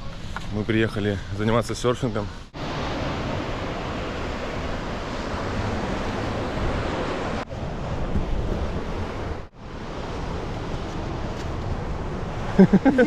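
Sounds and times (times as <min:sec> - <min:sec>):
surf washing on shore: 0:02.5 - 0:13.0
wind buffeting microphone: 0:02.8 - 0:12.8.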